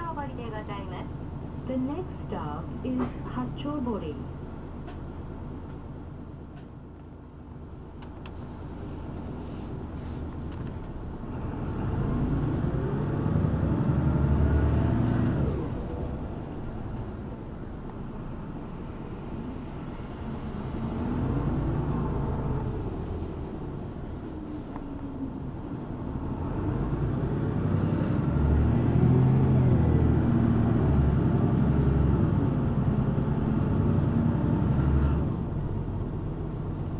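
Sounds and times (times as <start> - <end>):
bus engine revving: 9.4 - 36.9.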